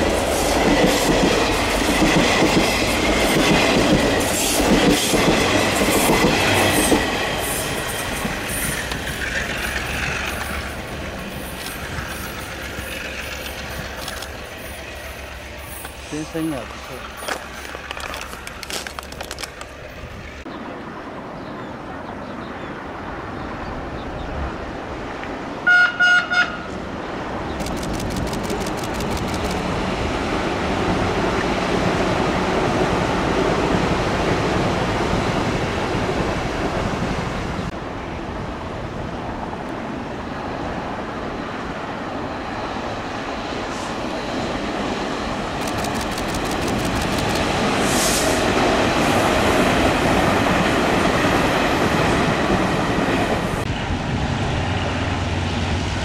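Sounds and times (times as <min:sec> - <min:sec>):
train running past rumbling: 0:00.0 - 0:18.7, 0:19.4 - 0:56.0
train horn blasts: 0:25.6 - 0:26.7.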